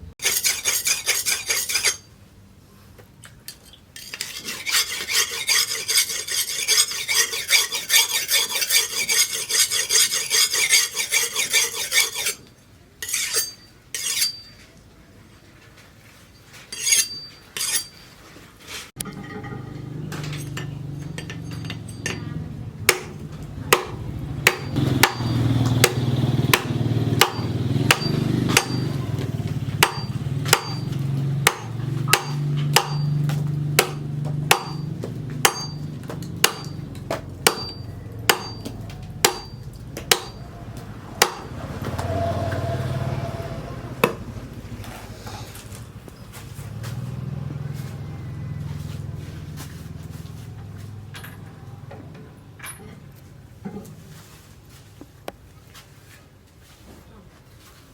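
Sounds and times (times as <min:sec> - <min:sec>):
hammer blows on metal: 0:20.2 - 0:36.8.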